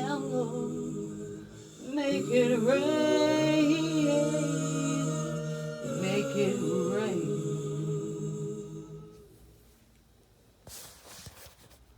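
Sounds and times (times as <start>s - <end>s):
person singing: 0.0s - 9.2s.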